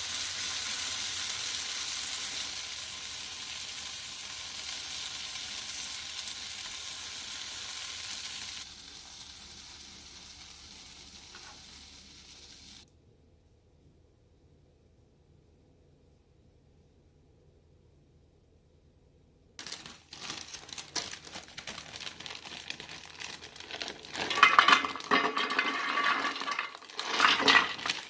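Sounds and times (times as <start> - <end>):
tomatoes sizzling in oil: 0.0 - 12.8, 19.6 - 28.0.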